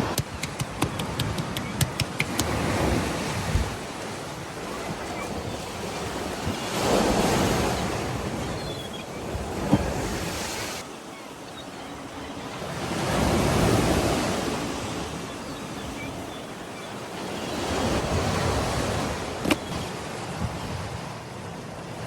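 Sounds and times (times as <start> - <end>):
surf breaking on shore: 0.0 - 8.5
wind buffeting microphone: 0.0 - 8.7.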